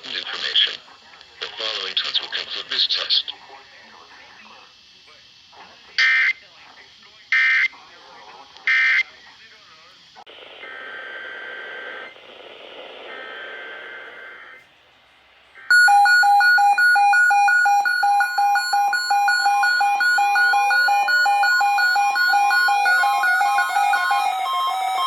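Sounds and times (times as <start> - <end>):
pulsing electronic tone: 15.7 - 25.0
raspy digital chirps: 15.7 - 25.0
rising sweeping tones: 15.7 - 25.0.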